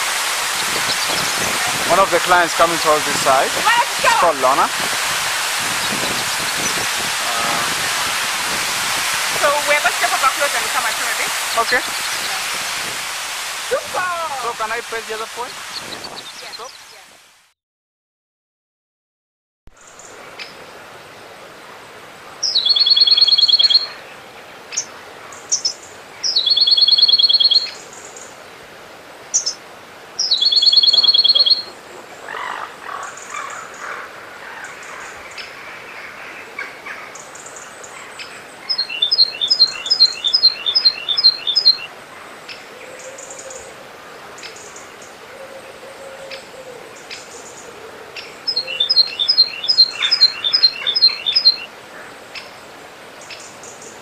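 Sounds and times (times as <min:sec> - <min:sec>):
songbird trills: 0:00.6 - 0:02.4, 0:15.6 - 0:17.1, 0:22.4 - 0:24.0, 0:24.7 - 0:28.3, 0:30.2 - 0:35.6, 0:36.6 - 0:41.9, 0:48.2 - 0:51.7.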